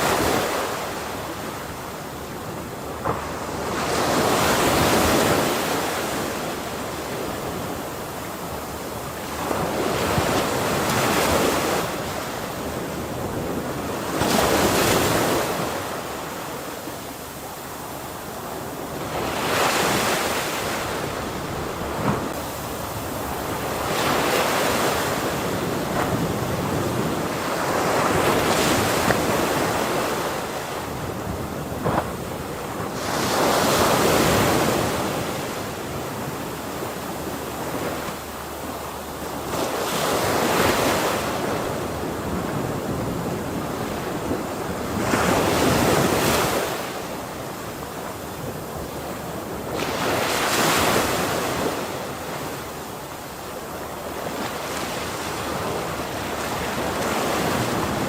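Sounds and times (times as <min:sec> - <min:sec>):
ocean waves breaking on shore: 0:00.0 - 0:58.0
steady roar of surf: 0:00.0 - 0:58.0.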